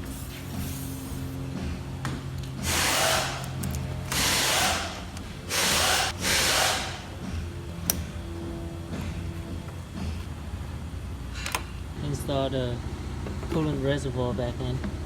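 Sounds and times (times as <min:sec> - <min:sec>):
background music: 0:00.1 - 0:12.2
cordless power driver running: 0:02.3 - 0:08.4.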